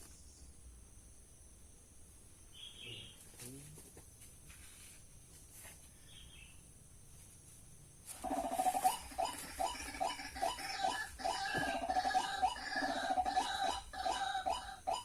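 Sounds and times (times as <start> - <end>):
bird croaking calls: 8.2 - 15.0.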